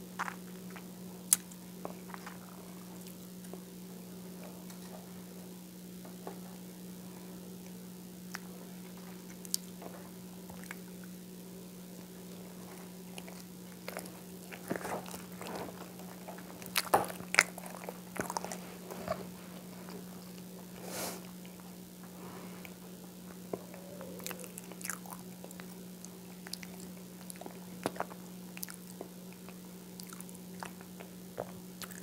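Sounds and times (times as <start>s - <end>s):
steady low hum: 0.0s - 32.0s
chewing with wet mouth clicks: 0.2s - 3.6s, 10.4s - 11.2s, 13.0s - 15.4s, 22.6s - 32.0s.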